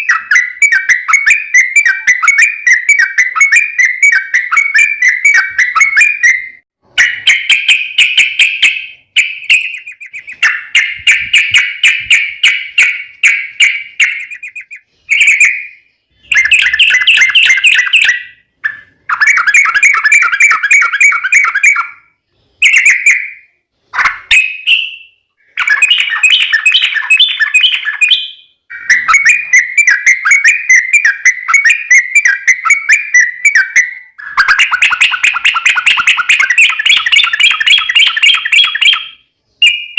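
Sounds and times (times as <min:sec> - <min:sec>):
bulbul singing chattering notes: 0:00.0 - 0:21.7.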